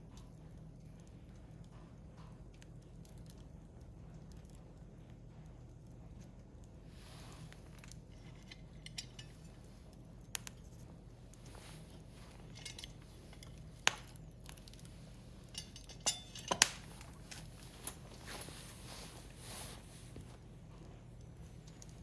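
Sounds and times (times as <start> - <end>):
firewood crackling: 0.0 - 22.0
sharp pops of fire: 9.2 - 18.5.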